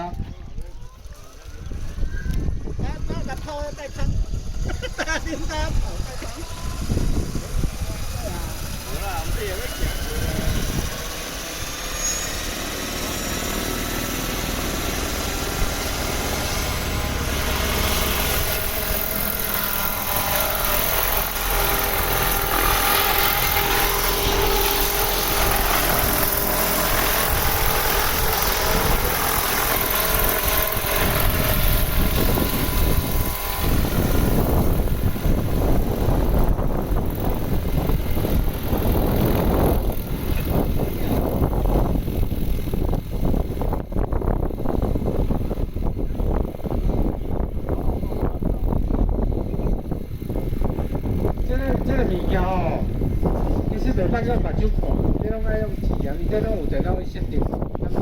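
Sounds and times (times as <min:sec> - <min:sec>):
wind on microphone: 0:00.0 - 0:58.0
helicopter engine and rotor: 0:01.1 - 0:58.0
low rumble: 0:03.8 - 0:58.0.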